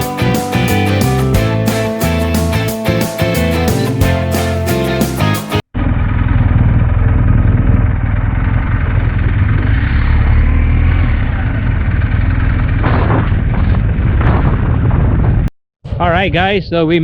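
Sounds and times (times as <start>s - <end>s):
motorcycle engine droning: 5.8s - 14.1s
wind and road noise: 5.9s - 15.5s.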